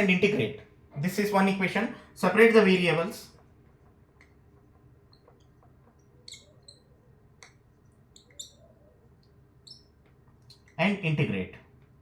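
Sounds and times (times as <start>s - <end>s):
marker squeaking on whiteboard: 2.5s - 11.0s.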